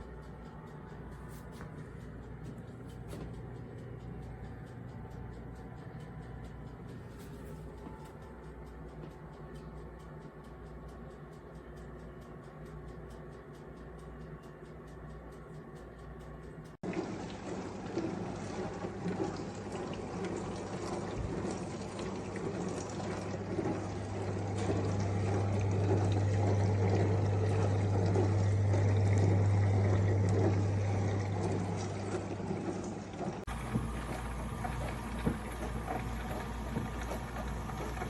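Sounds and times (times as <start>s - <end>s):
low pump hum: 0.0s - 38.0s
water pouring and splashing: 16.8s - 38.0s.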